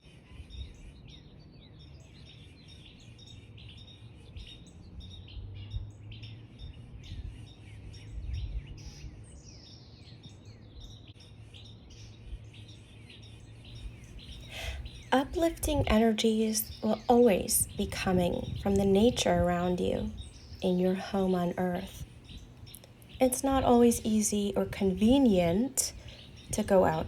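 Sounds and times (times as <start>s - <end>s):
songbirds chirping and whistling: 0.0s - 27.0s
low outdoor rumble: 13.6s - 27.0s.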